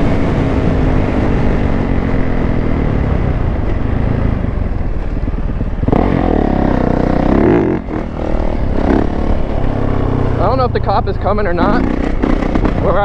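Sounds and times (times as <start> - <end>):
dirt bike engines: 0.0 - 13.0
wind rushing over camera: 0.0 - 13.0.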